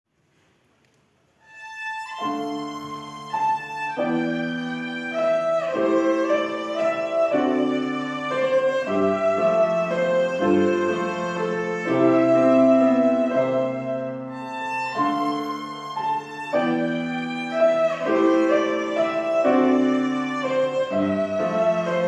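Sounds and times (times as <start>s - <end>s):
violin melody: 1.4s - 22.0s
piano chords: 1.5s - 22.0s.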